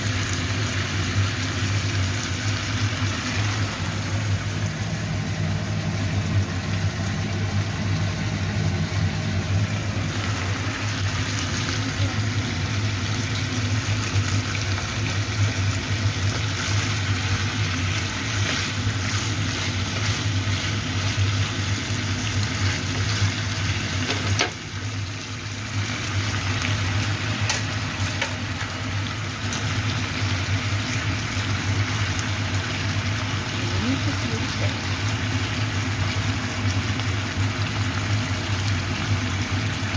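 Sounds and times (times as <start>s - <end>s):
food sizzling in a frying pan: 0.0s - 39.9s
steady low hum: 0.8s - 24.0s.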